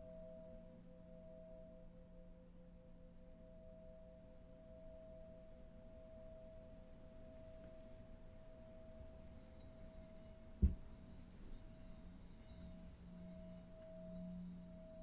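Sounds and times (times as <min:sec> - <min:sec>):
low thump: 0:10.6 - 0:11.0
ambient drone tones: 0:11.5 - 0:15.0.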